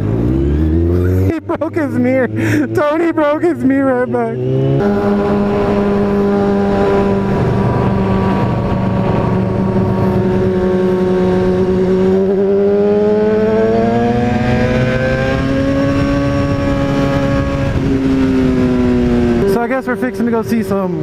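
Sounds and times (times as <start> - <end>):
motorcycle engine running: 0.0 - 21.0
wind noise: 4.4 - 21.0.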